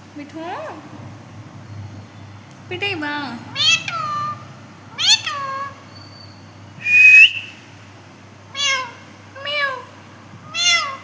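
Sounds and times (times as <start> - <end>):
parrot calls: 3.5 - 7.6, 8.5 - 11.0
parrot whistling: 5.0 - 7.6.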